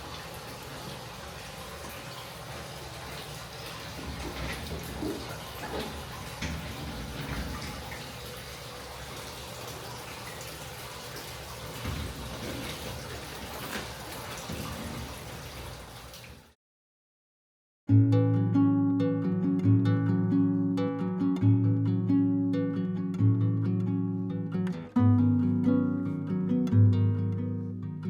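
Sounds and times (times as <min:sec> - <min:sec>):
water running: 0:00.0 - 0:16.6
water splashes and drips: 0:00.0 - 0:16.6.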